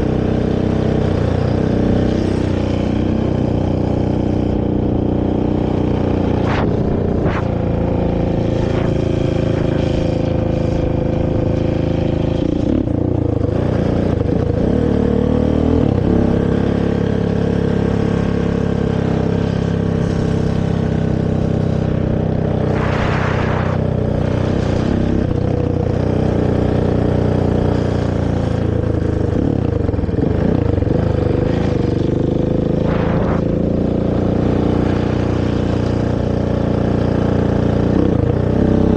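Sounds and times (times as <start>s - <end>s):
atv engine revving: 0.0s - 38.9s
brief rushing hiss: 22.7s - 24.0s.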